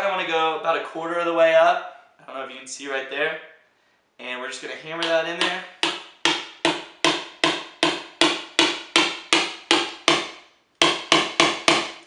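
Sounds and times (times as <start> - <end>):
hammer striking screwdriver handle: 5.0 - 10.2, 10.8 - 12.0.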